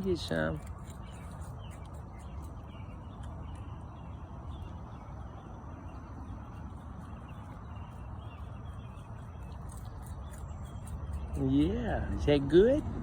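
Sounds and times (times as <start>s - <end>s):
faint bird chirps: 0.0s - 12.6s
low hum: 0.0s - 13.0s.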